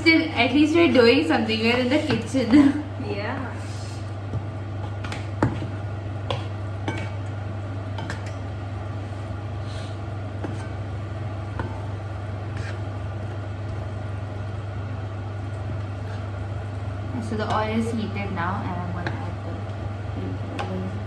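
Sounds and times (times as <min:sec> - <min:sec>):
steady low hum: 0:00.0 - 0:21.0
utensils clinking against a pan: 0:06.3 - 0:07.3, 0:07.9 - 0:08.4.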